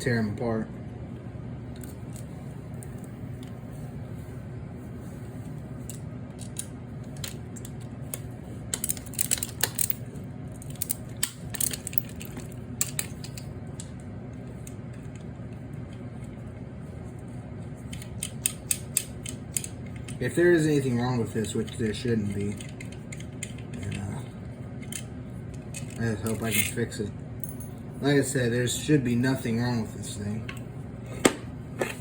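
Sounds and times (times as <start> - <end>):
steady low hum: 0.0 - 32.0
metal tool clicks and clinks: 25.8 - 26.8.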